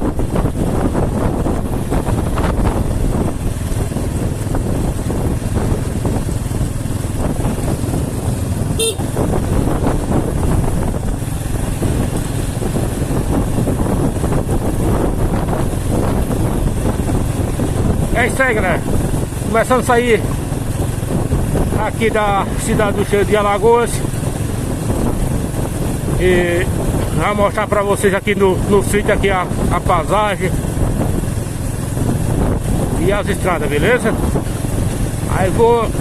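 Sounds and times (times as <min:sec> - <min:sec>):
vehicle driving: 0:00.0 - 0:36.0.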